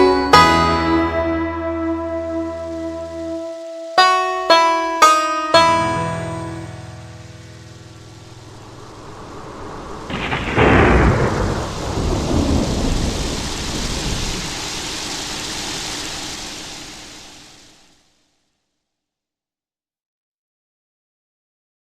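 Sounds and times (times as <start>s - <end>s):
piano notes: 0.0s - 11.8s
rain hiss: 0.0s - 18.5s
thunder rumble: 7.9s - 18.0s
thunderclap: 8.5s - 17.9s.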